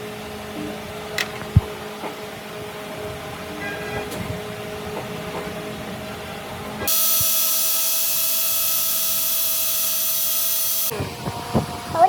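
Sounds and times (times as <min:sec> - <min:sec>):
high-pitched tool whining: 0:06.9 - 0:11.0.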